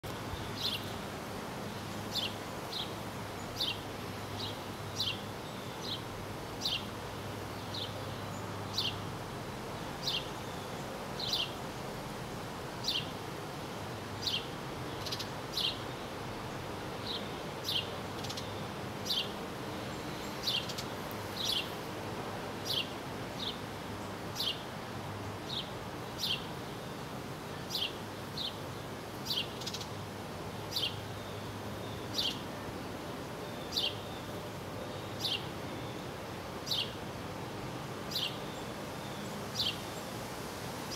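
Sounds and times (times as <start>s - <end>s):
low hum and hiss: 0.0s - 40.9s
bird chirping: 0.3s - 0.9s, 2.1s - 3.8s, 4.4s - 6.9s, 7.6s - 9.1s, 17.0s - 21.7s, 30.7s - 32.4s, 33.4s - 36.0s, 36.6s - 37.0s, 38.1s - 39.8s.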